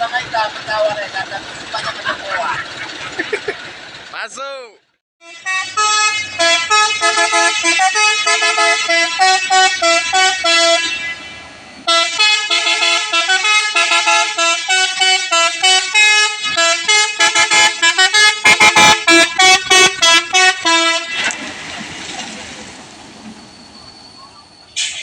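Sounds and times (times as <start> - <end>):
musical vehicle horn: 5.2 - 21.4.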